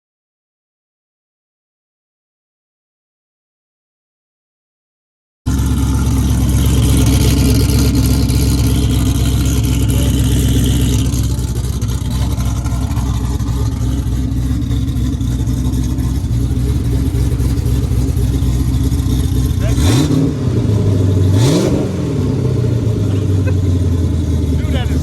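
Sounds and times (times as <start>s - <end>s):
loud car engine running steadily: 5.5s - 25.0s.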